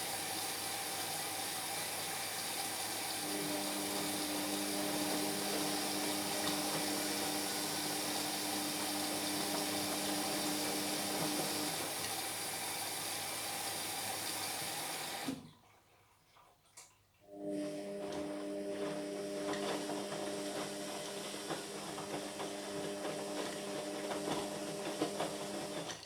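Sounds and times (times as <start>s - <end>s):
washing machine water rushing: 0.0s - 15.7s, 17.3s - 26.0s
washing machine pump hum: 0.0s - 15.8s, 17.3s - 26.0s
motor hum: 3.2s - 11.8s.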